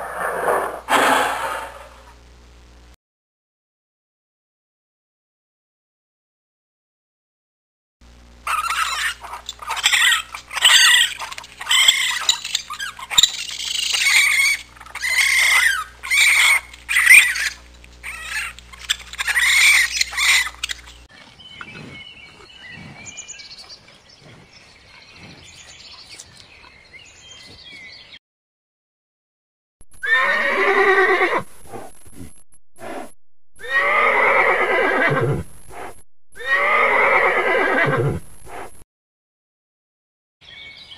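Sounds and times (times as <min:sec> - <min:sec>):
loud animal calls bending in pitch: 0:00.0 - 0:02.1, 0:08.5 - 0:20.7, 0:30.0 - 0:38.6.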